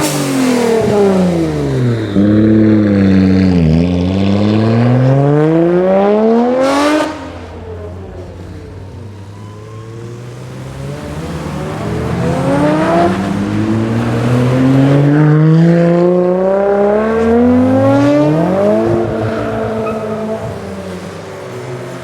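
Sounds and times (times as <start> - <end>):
car accelerating hard: 0.0 - 22.0.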